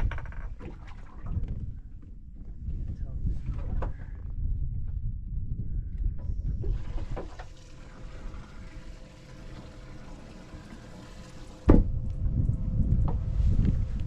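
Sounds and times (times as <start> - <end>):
low rumbling: 0.0 - 14.0
water running and splashing: 6.7 - 11.7.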